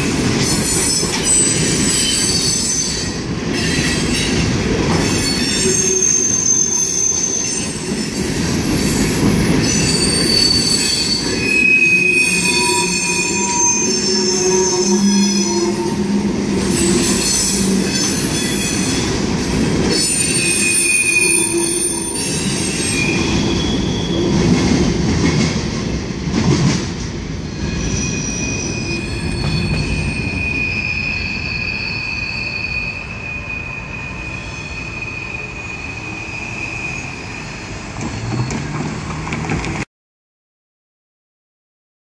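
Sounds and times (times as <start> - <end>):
train wheels clattering and squealing: 0.0 - 39.8
long high squeal: 5.1 - 8.1, 9.7 - 19.1, 20.1 - 24.3, 27.5 - 38.7
train rumble: 21.5 - 31.8, 33.8 - 39.8.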